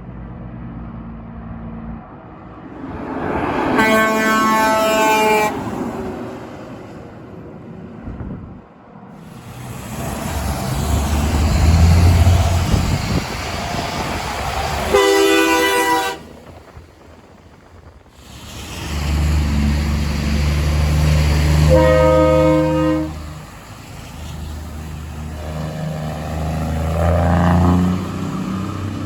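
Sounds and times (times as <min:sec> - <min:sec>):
truck engine rumble: 0:00.0 - 0:29.0
multi-note air horn blast: 0:03.6 - 0:05.8, 0:14.9 - 0:16.3, 0:21.5 - 0:23.4.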